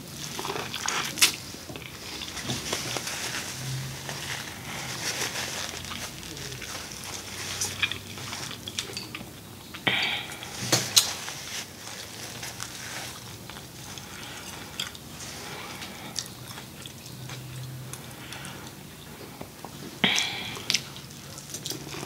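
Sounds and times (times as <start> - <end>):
chewing and lip smacking: 11.9 - 22.0.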